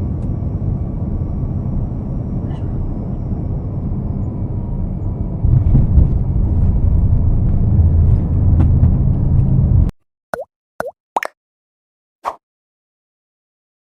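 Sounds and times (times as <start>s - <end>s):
low rumble of moving vehicle: 0.0s - 9.9s.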